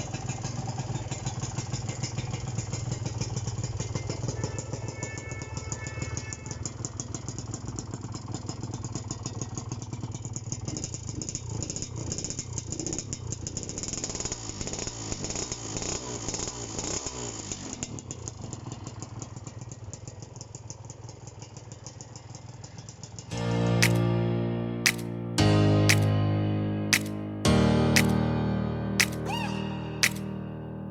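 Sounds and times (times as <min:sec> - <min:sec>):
two-stroke engine running: 0:00.0 - 0:23.3.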